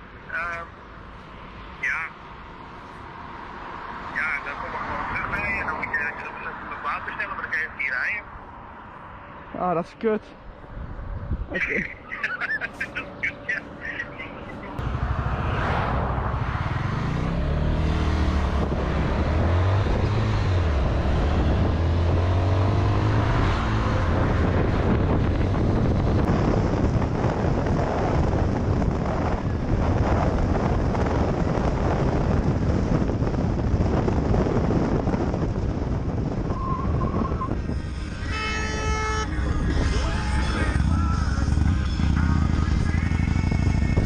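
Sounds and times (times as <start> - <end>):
wind and road noise: 0.0 - 44.0
motorcycle engine running: 39.5 - 44.0.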